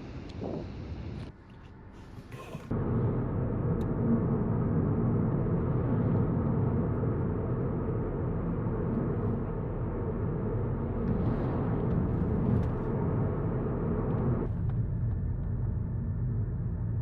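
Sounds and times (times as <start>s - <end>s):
wind on microphone: 0.2s - 1.2s
car engine running: 2.7s - 17.0s.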